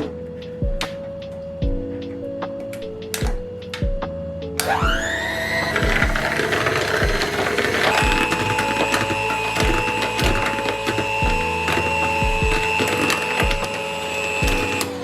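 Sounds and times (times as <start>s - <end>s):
background music with steady beat: 0.0s - 15.0s
electric kitchen motor whining: 4.6s - 15.0s.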